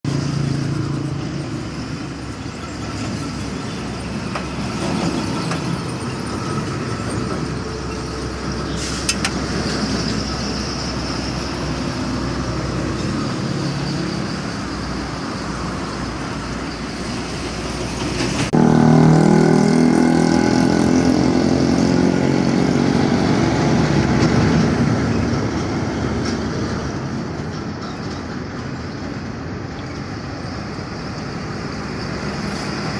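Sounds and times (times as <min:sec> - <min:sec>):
road noise: 0:00.0 - 0:32.9
trucks driving past: 0:00.1 - 0:32.9
truck engine deep drone: 0:18.5 - 0:27.5.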